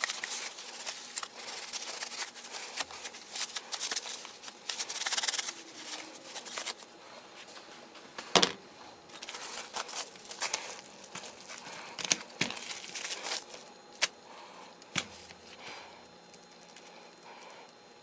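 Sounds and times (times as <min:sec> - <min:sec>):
small parts clicking and rattling: 0:14.8 - 0:17.8.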